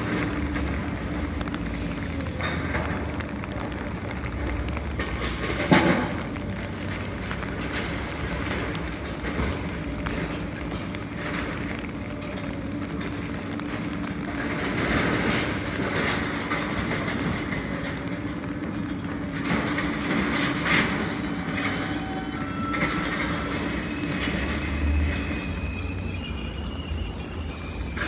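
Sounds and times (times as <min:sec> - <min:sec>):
subway train running: 0:00.0 - 0:28.0
wheels clattering over rail joints: 0:00.0 - 0:28.0
faint thin squeal: 0:21.4 - 0:28.0.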